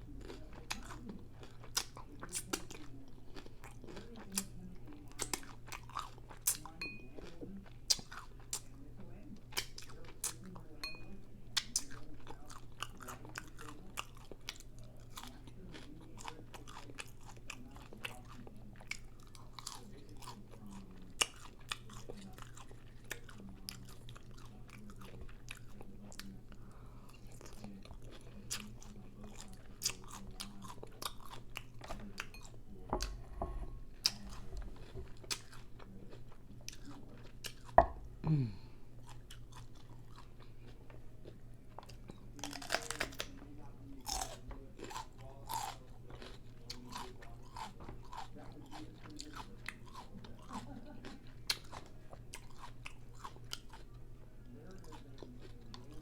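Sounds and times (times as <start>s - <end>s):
crunchy taco shell chewing: 0.1s - 6.6s, 34.0s - 54.0s.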